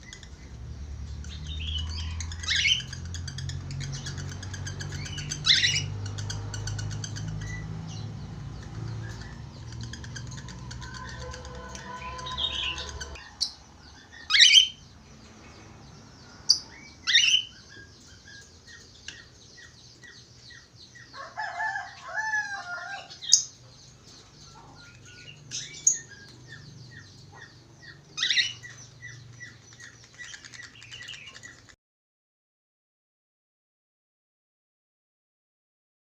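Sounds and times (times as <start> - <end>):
budgerigars chirping and warbling: 0.0 - 31.8
loud sharp bird calls: 0.0 - 31.8.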